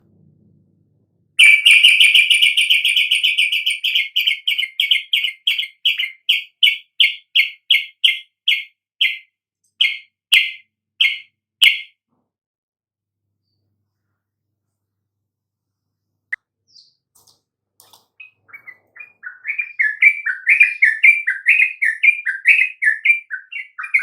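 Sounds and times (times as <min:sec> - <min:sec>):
bird sharp high chirps: 0:01.4 - 0:12.0, 0:16.7 - 0:17.1, 0:18.1 - 0:24.0.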